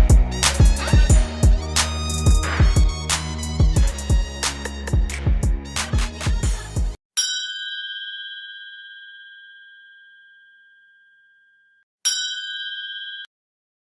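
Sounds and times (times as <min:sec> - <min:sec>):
bell-like chime ringing: 0:07.2 - 0:13.3.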